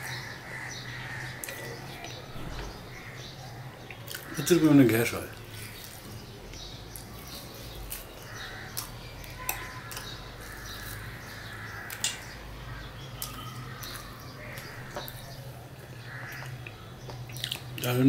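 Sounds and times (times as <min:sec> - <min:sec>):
chewing bread: 0:05.4 - 0:12.0, 0:12.7 - 0:17.8.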